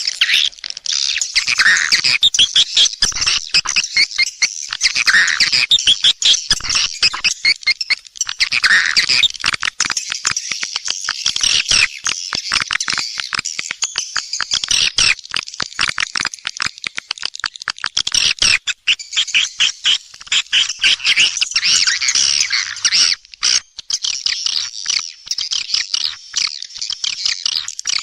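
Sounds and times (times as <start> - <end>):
swiftlets twittering: 0.0 - 16.3.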